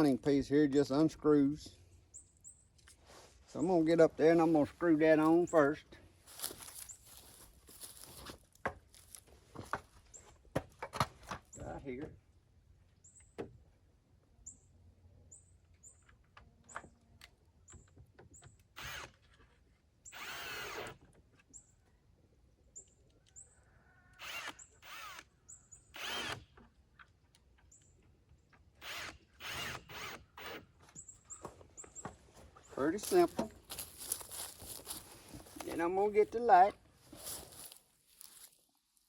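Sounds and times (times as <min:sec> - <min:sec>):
cordless drill driving screws: 0:18.6 - 0:19.3, 0:20.1 - 0:21.0, 0:24.1 - 0:25.3, 0:25.9 - 0:26.6, 0:28.7 - 0:30.8.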